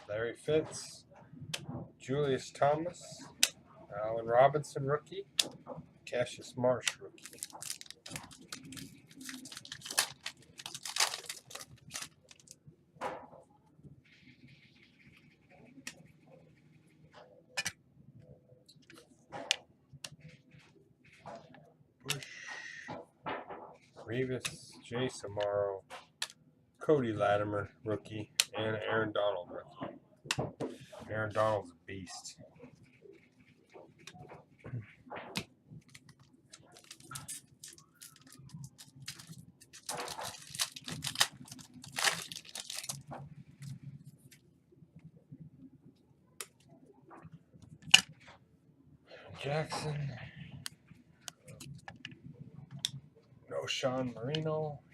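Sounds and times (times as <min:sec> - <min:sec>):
cards rustling and sliding: 0:07.2 - 0:12.5
foil wrappers rustling: 0:07.2 - 0:12.6, 0:35.9 - 0:43.1.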